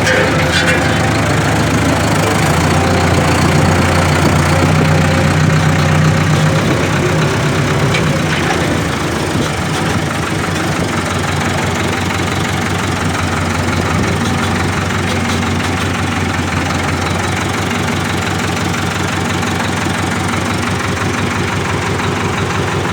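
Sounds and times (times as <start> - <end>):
tractor engine running: 0.0 - 22.9.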